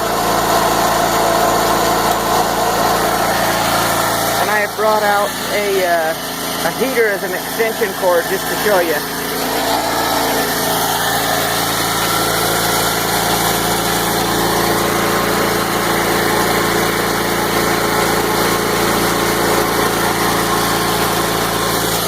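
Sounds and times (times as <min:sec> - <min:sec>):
portable generator humming: 0:00.0 - 0:22.0.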